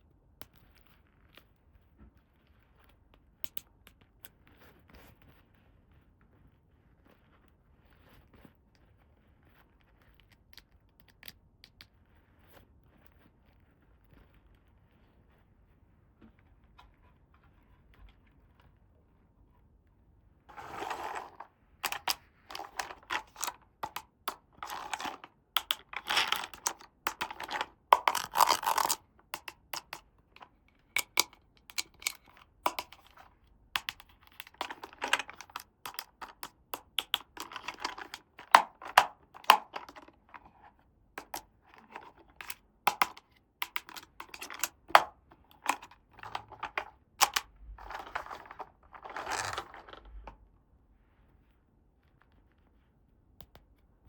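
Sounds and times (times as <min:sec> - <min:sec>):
plastic toy pieces clicking: 0:20.5 - 0:40.6, 0:41.2 - 0:50.3
packaging rustling: 0:33.8 - 0:50.4.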